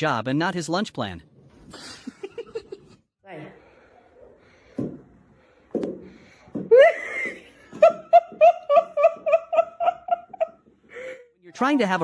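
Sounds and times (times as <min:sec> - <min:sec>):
person laughing: 0:06.7 - 0:11.1.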